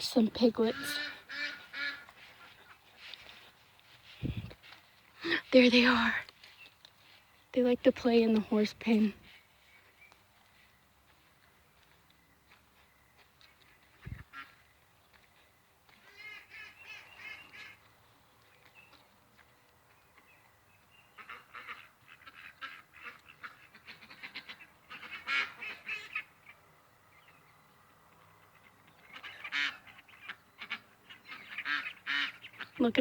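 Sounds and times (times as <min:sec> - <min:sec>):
geese honking: 0:00.0 - 0:02.8, 0:14.0 - 0:14.7, 0:16.0 - 0:17.9, 0:21.1 - 0:26.6, 0:28.4 - 0:33.0.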